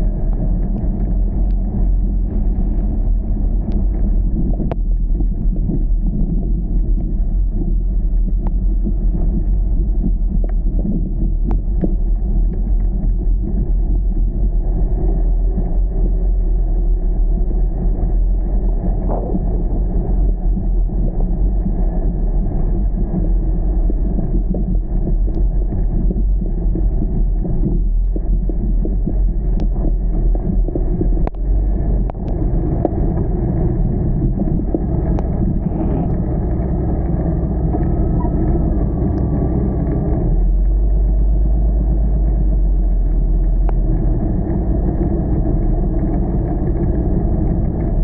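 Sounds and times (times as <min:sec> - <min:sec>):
car engine and road noise: 0:00.0 - 0:08.7, 0:28.2 - 0:48.0
faint clicks: 0:31.2 - 0:31.4.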